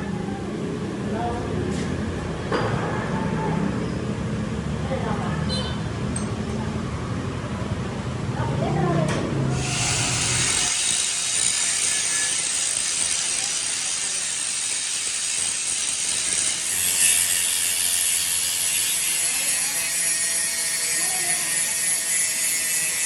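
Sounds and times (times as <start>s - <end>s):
metal being machined: 9.5s - 23.0s.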